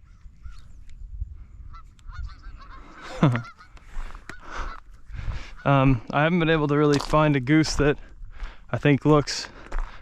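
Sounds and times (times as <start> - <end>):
geese honking: 1.6 - 6.4.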